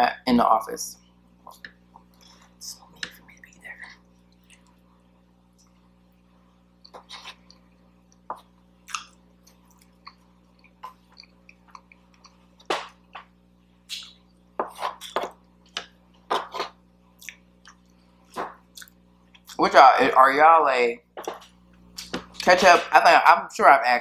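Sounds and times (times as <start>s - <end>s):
moist chewing and mouth smacks: 4.3s - 4.8s, 6.8s - 13.3s, 16.5s - 19.6s.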